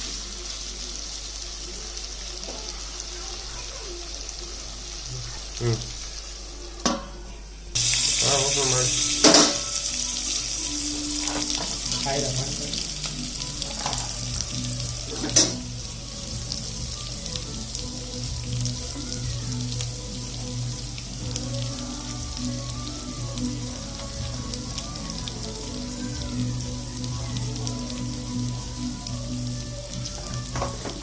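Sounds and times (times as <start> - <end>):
steady kitchen hiss: 0.0 - 31.0.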